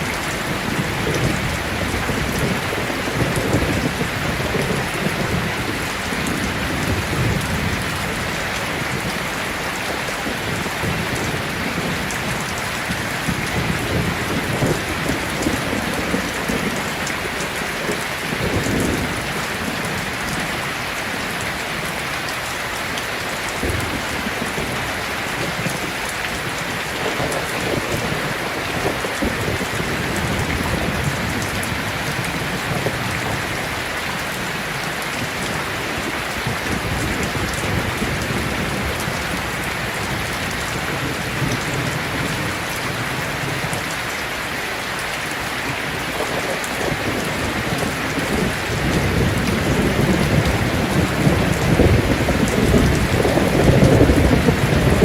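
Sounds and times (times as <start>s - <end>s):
thunder rumbling: 0.0s - 22.0s, 23.5s - 43.9s, 45.6s - 55.0s
heavy rain: 0.0s - 55.0s.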